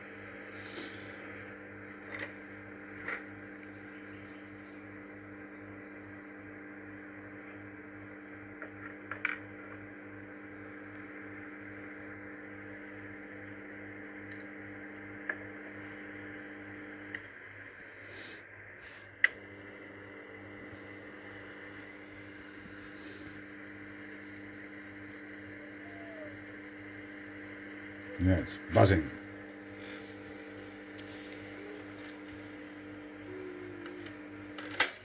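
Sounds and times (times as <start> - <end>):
microwave oven humming: 0.0 - 35.0
faint clicks: 29.8 - 34.9.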